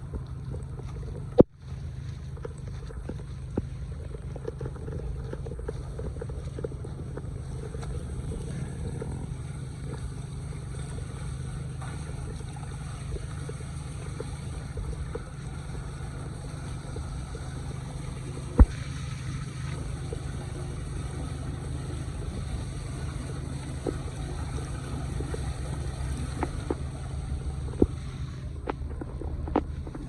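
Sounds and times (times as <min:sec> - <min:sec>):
small water splashes: 0:00.0 - 0:30.0
wind rumble on microphone: 0:00.0 - 0:30.0
water gurgling into drain: 0:02.4 - 0:30.0.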